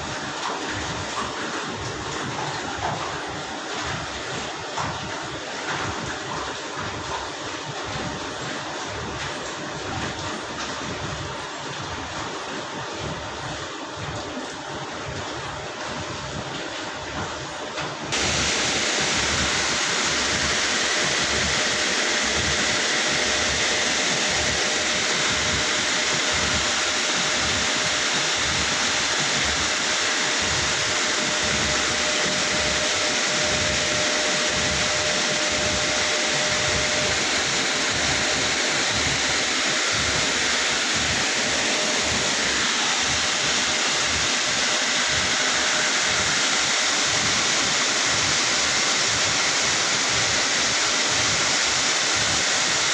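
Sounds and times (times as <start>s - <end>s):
faint steady whine: 18.1s - 52.9s.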